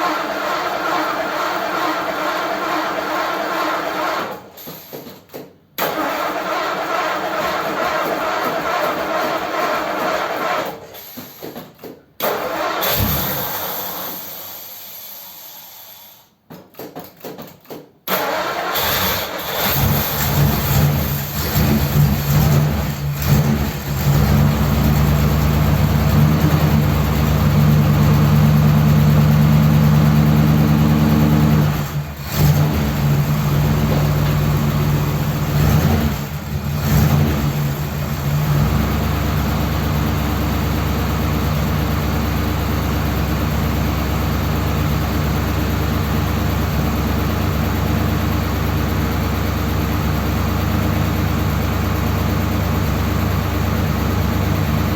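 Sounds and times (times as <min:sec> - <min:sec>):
car engine idling roughly: 0:19.5 - 0:54.9.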